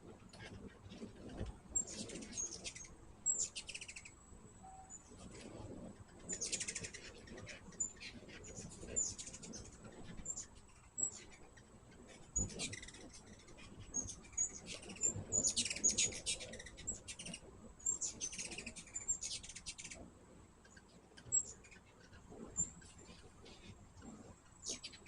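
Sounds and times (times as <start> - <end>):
hummingbirds chittering: 0.0 - 25.0.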